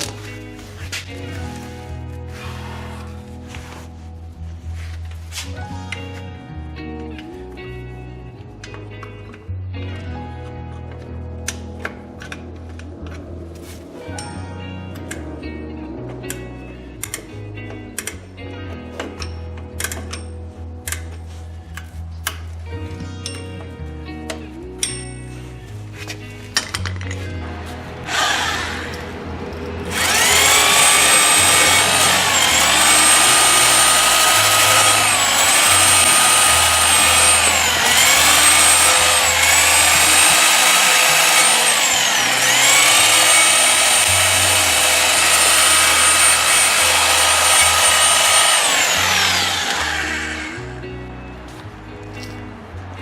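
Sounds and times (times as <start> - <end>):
background music: 0.0 - 53.0
power tool motor whining: 28.0 - 29.2, 29.9 - 50.8.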